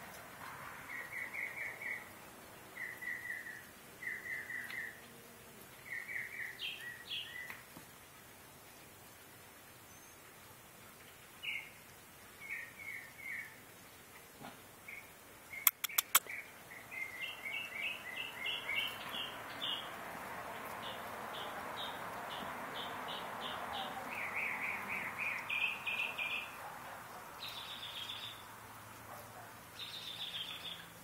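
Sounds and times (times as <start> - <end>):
songbird singing: 0.8 - 7.8, 9.7 - 13.9, 14.8 - 31.0
sharp clicks: 15.7 - 16.3.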